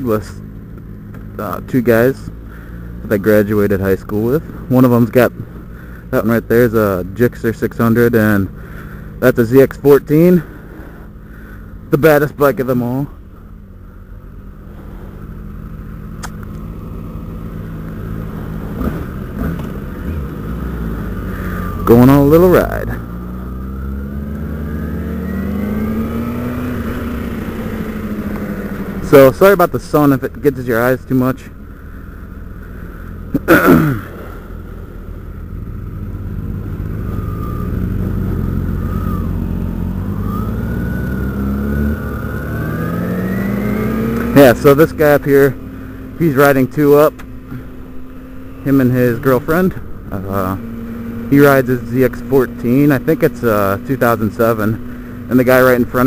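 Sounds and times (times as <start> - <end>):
motorcycle engines humming: 0.0 - 56.0
sharp click: 16.2 - 16.6.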